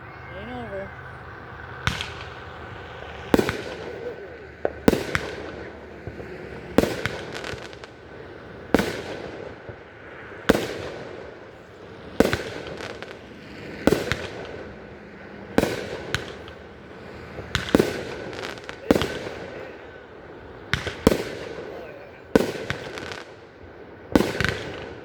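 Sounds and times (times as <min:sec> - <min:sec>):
fireworks booming: 0:00.0 - 0:25.0
fireworks crackling: 0:00.0 - 0:25.0.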